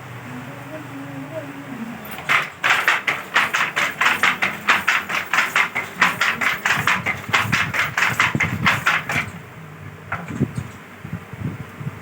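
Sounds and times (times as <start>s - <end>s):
handloom wooden clacking: 2.0s - 9.4s, 10.1s - 10.8s.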